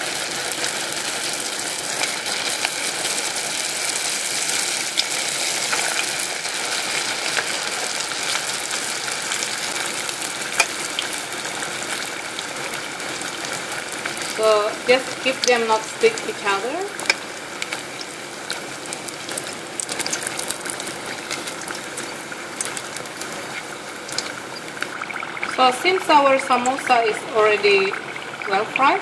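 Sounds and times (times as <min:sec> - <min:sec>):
food deep-frying in hot oil: 0:00.0 - 0:29.0.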